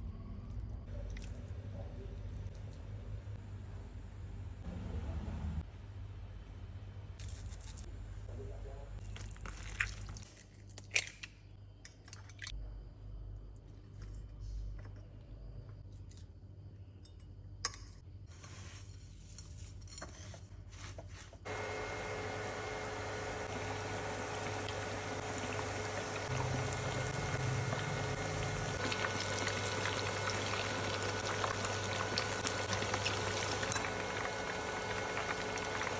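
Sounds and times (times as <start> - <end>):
chicken deep-frying in hot oil: 9.0 - 10.4, 21.4 - 35.9.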